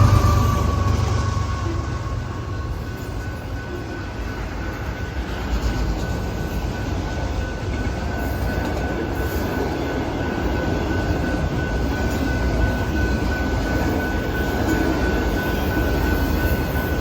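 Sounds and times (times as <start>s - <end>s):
thin high tone: 0.0s - 4.4s
train wheels rumbling on rail: 0.0s - 17.0s.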